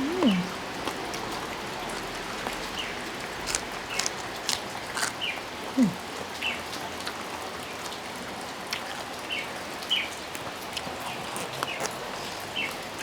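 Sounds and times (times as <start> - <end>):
steady rain: 4.6 - 13.0.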